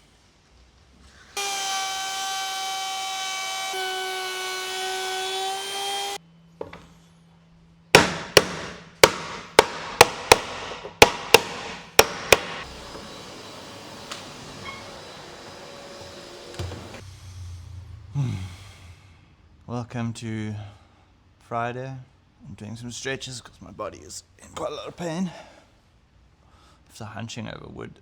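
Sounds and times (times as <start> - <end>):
sharp knocks on wood: 8.0 - 12.6
machine high whine: 12.6 - 18.1.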